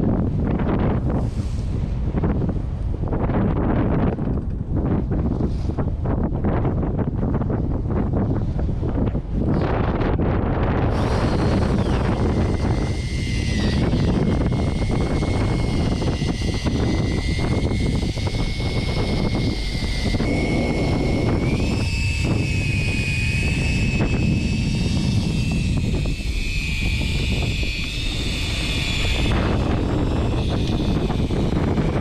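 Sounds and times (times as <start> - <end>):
high engine whine: 0.0 - 32.0
boat engine rumbling: 8.4 - 32.0.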